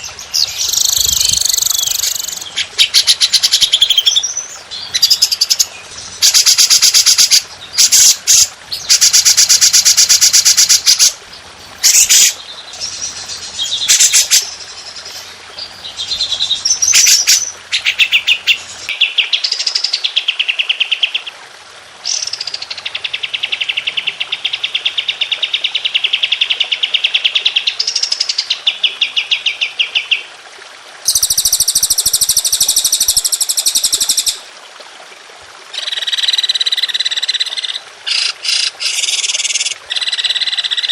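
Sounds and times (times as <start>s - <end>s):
songbird trills and chattering: 0.0s - 9.2s.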